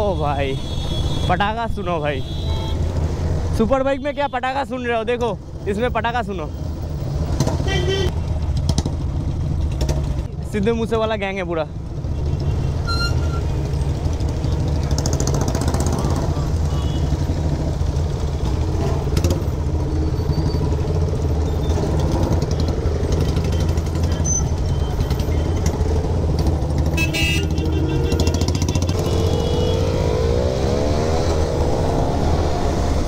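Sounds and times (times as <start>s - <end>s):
motorcycle engines running: 6.5s - 33.0s
engine revving: 26.1s - 33.0s.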